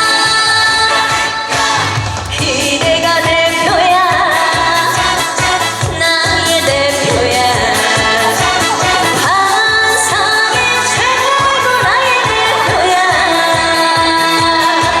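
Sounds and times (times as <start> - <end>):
pop song with sung melody: 0.0 - 15.0.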